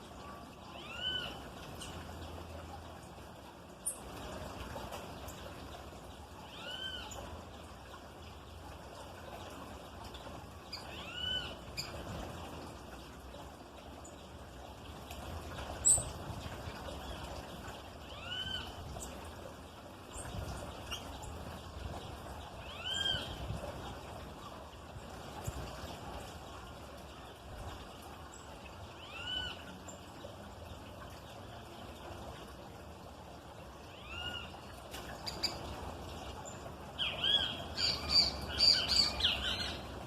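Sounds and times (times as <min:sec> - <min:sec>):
songbird call notes: 0:37.0 - 0:39.8.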